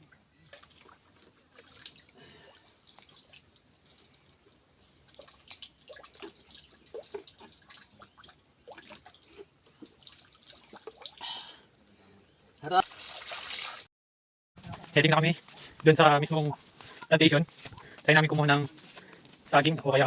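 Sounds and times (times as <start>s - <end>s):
water dripping in a well: 0.0s - 13.6s.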